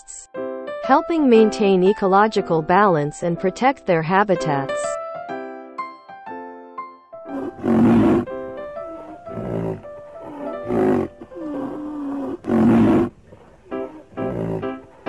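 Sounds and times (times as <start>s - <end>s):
light piano music: 0.3s - 3.7s, 4.3s - 15.0s
rhinoceros deep rough calls: 7.3s - 15.0s.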